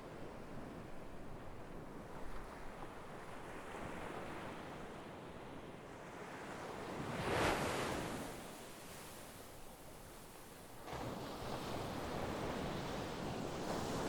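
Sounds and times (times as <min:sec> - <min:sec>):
sea waves washing ashore: 0:06.2 - 0:09.3, 0:09.9 - 0:14.0.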